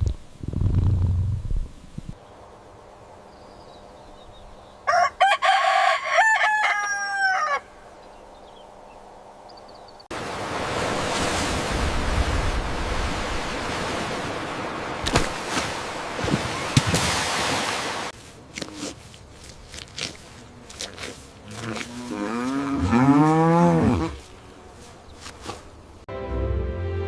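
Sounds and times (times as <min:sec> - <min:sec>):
rooster crowing: 0:04.8 - 0:07.8.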